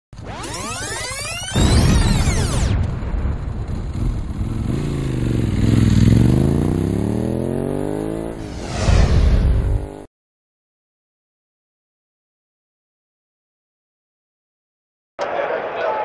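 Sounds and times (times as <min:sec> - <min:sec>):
motorcycle engine revving: 0:03.6 - 0:08.6, 0:09.4 - 0:10.1
fast sweeping whooshes: 0:08.4 - 0:10.0.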